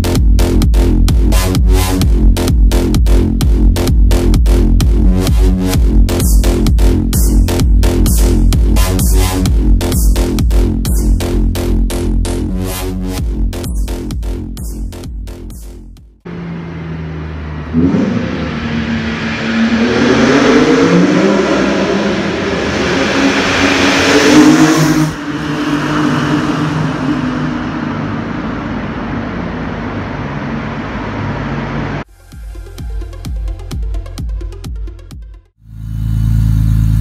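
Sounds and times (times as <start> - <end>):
car engine revving: 16.2 - 32.1.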